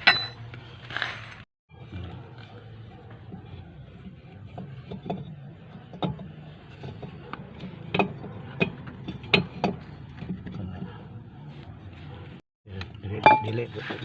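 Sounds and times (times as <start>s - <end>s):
metal tools clinking: 0.0s - 0.4s.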